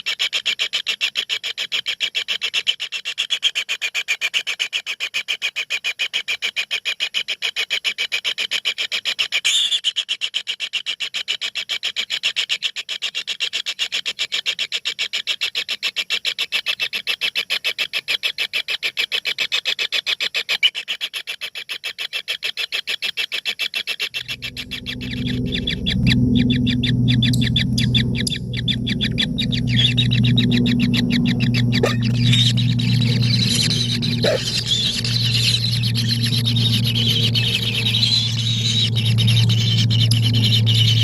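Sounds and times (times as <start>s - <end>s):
low steady hum: 24.2s - 41.0s
nestling birds begging calls: 24.2s - 41.0s.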